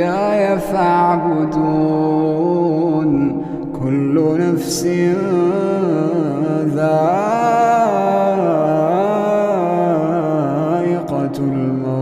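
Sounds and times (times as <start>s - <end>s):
person reciting melodically: 0.0s - 12.0s.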